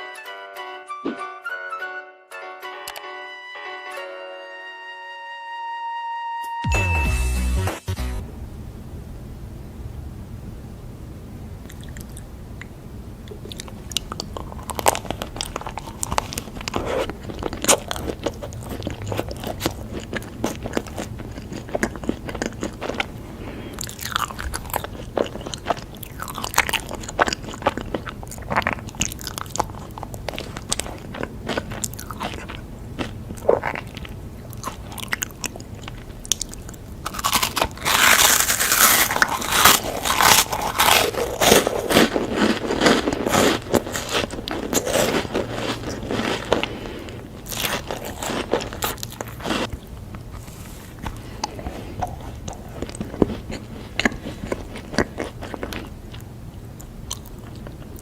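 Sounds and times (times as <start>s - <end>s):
crunchy snack being chewed: 11.6s - 12.3s, 13.2s - 58.0s.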